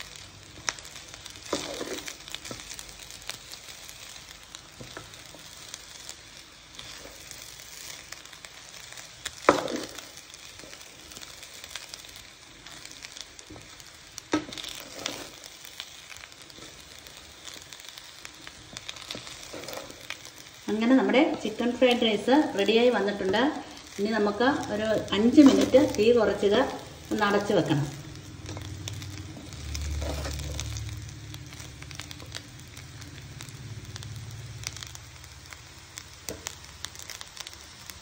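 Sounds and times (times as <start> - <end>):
rice sizzling in a hot pan: 0.0 - 38.0
utensil scraping and knocking on pan: 9.4 - 10.0, 14.3 - 15.4.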